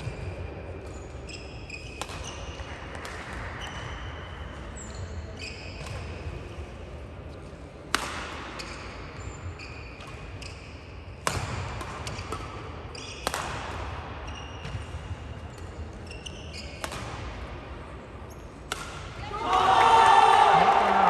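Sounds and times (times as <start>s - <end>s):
shoe squeaks on court floor: 0.9s - 2.6s, 3.6s - 6.0s, 8.6s - 10.7s, 12.9s - 13.3s, 14.3s - 14.9s, 15.5s - 17.0s
racket hitting shuttlecock: 2.0s - 3.6s, 7.9s - 8.6s, 11.2s - 15.7s, 16.8s - 17.5s, 18.6s - 19.9s.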